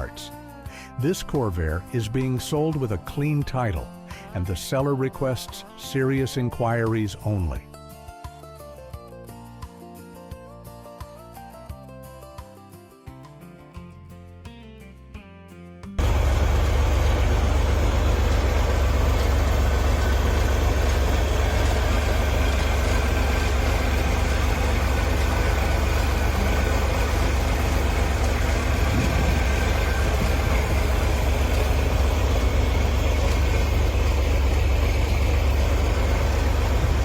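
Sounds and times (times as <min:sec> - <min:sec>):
car engine rumbling: 0:16.0 - 0:37.0.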